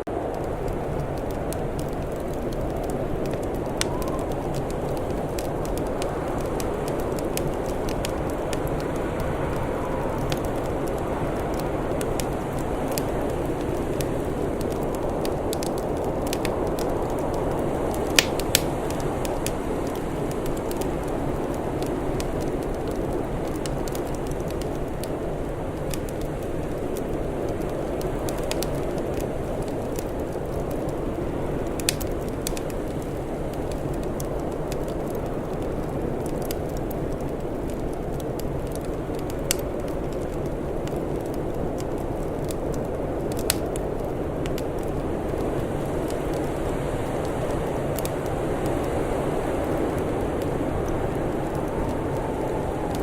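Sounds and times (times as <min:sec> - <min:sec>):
wood fire crackling: 0:00.0 - 0:53.0
sharp pops from fire: 0:00.2 - 0:53.0
low rushing noise: 0:49.6 - 0:53.0.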